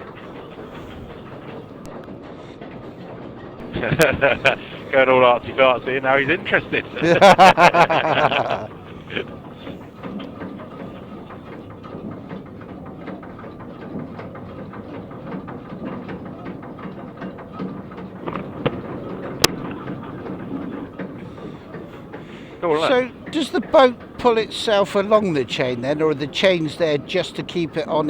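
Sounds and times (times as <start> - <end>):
ferry mechanical rumble: 0.0 - 28.0.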